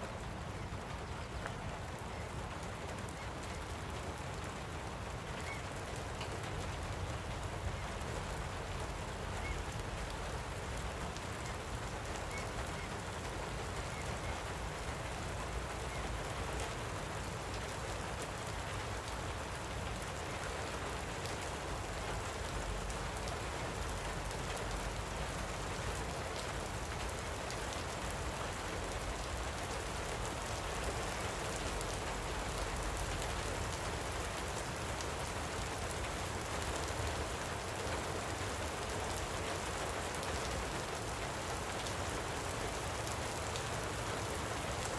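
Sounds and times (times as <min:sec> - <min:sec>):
light rain falling: 0:00.0 - 0:44.9.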